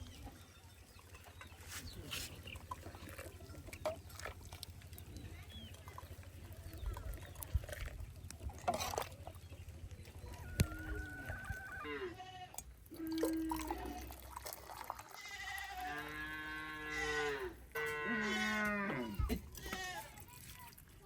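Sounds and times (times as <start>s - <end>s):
small livestock bleating: 10.4s - 12.6s, 15.1s - 20.2s.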